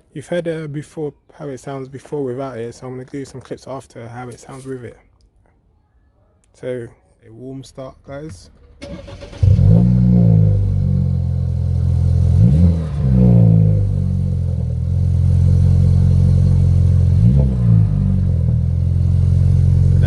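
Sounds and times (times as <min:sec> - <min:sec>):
car engine idling and revving: 0:08.3 - 0:20.0.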